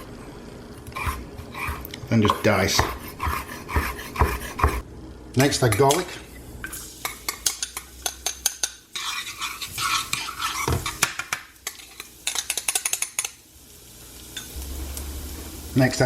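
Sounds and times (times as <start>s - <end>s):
sizzling: 0.0s - 16.0s
utensil scraping a frying pan: 0.9s - 4.8s, 7.3s - 13.4s.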